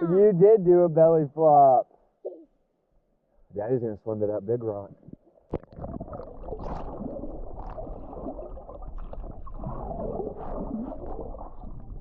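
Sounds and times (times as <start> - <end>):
water sloshing from swimming: 5.2 - 12.0.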